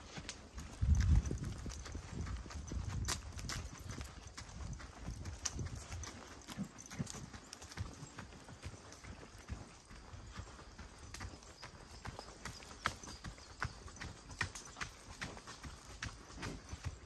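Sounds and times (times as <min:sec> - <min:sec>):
footsteps on hard ground: 0:00.0 - 0:10.0.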